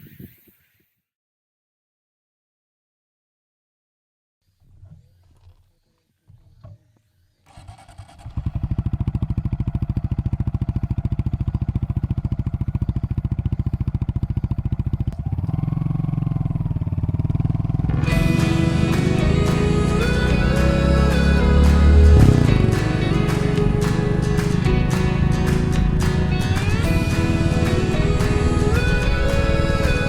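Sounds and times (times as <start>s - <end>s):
motorcycle engine idling: 7.5s - 30.0s
music: 17.9s - 30.0s.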